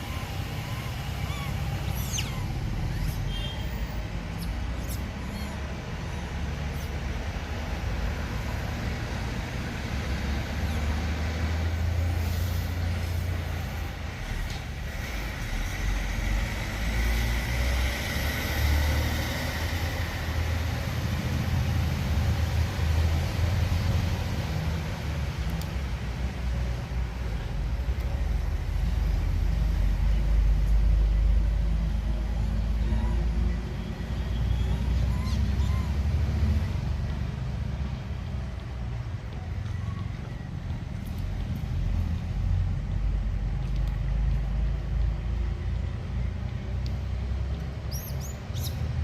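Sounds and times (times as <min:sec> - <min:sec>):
low outdoor rumble: 0:00.0 - 0:49.0
faint clicks: 0:43.6 - 0:45.2, 0:46.4 - 0:47.7.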